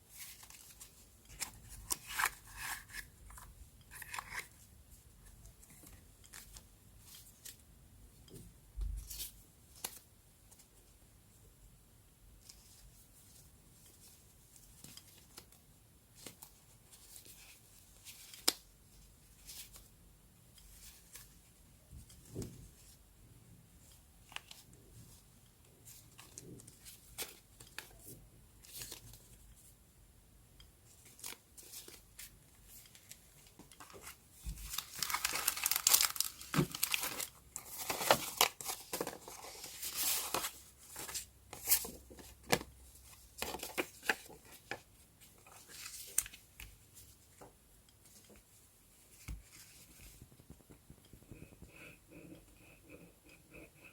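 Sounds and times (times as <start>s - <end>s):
soft paper taps and rustles: 25.8s - 29.7s, 30.9s - 51.9s
paper tearing and crinkling: 34.7s - 40.5s.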